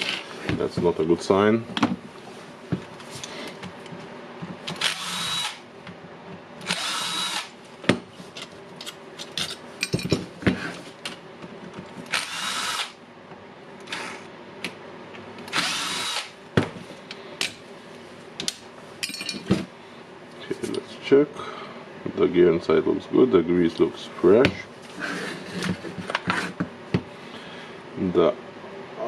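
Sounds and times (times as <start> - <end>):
cordless drill whirring: 4.8 - 5.6, 6.6 - 7.6, 12.1 - 13.0, 15.5 - 16.3.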